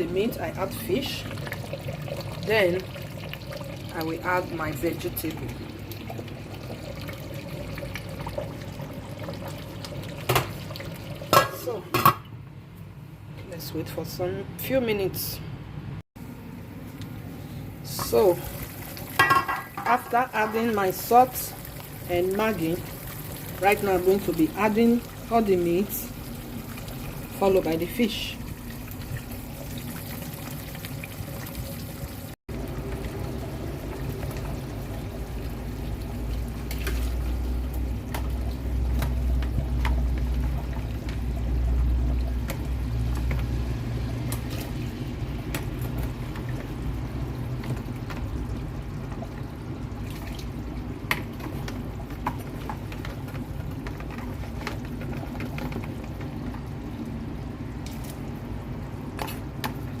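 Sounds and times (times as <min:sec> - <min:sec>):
liquid sloshing in a pot: 0:00.1 - 0:11.7, 0:17.9 - 1:00.0
utensils clinking against pot: 0:19.2 - 0:20.6.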